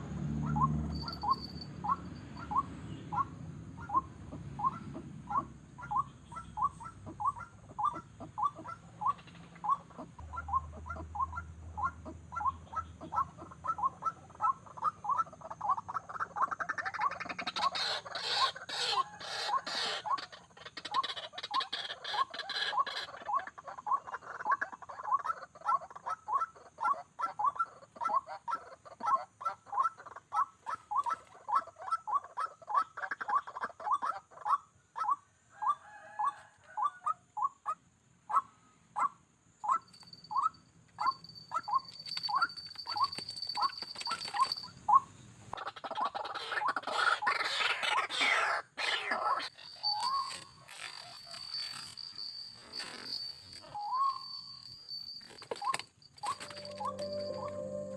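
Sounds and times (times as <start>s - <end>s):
bird calling repeated notes: 0.4s - 15.8s, 48.8s - 51.5s, 53.1s - 54.6s, 55.5s - 57.9s.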